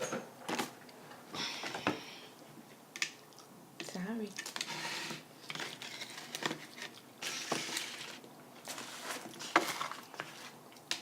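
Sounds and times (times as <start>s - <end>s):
food packaging rustling: 4.3s - 11.0s.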